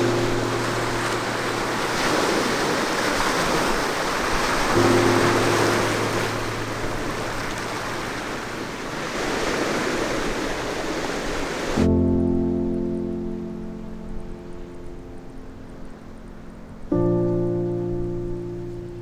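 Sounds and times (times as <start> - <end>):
music with low sustained chords: 0.0 - 9.0, 11.8 - 19.0
ocean surf washing ashore: 0.0 - 12.1.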